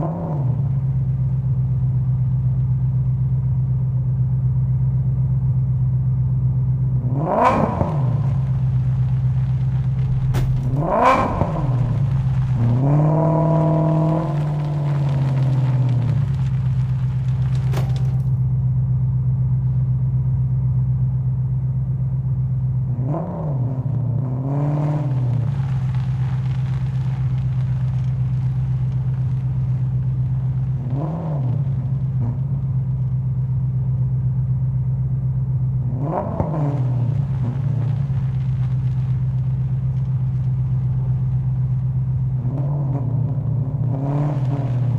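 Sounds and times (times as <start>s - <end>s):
car engine idling and revving: 0.0s - 44.9s.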